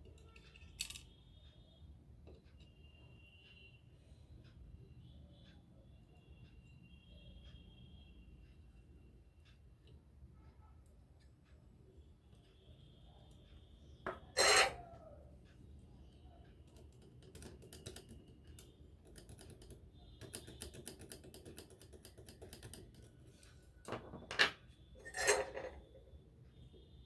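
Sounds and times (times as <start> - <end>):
light clicks and taps of parts: 0.0 - 3.8, 15.0 - 24.7.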